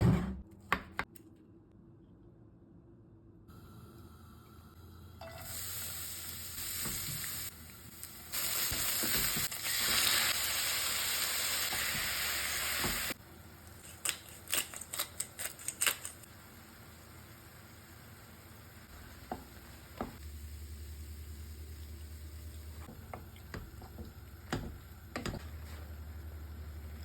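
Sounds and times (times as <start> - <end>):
food sizzling in a pan: 5.2 - 13.2, 15.6 - 22.9.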